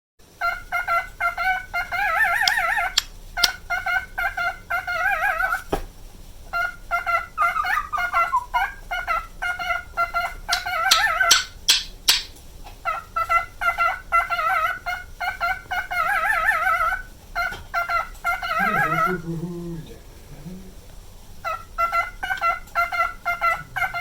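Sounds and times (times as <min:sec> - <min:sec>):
cockatiel whistling: 0:00.4 - 0:05.7, 0:06.5 - 0:19.2.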